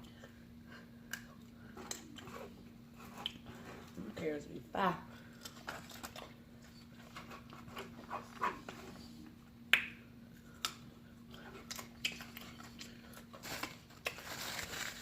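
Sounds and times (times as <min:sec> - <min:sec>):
faint steady hum: 0:00.0 - 0:15.0
chewing and biting: 0:10.5 - 0:14.3.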